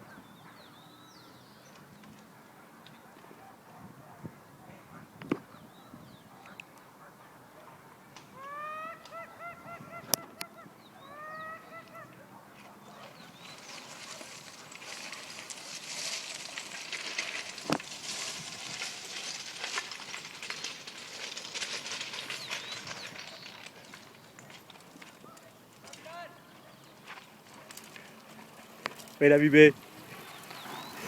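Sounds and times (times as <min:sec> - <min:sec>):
animal honking calls: 0:08.3 - 0:13.2
rushing crackling noise: 0:12.9 - 0:31.0.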